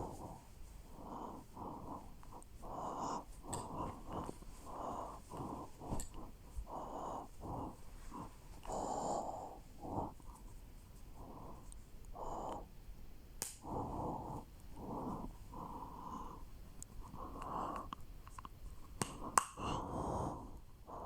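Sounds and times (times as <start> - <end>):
person breathing noisily: 0.0 - 10.4, 11.1 - 12.7, 13.6 - 17.9, 19.2 - 21.0.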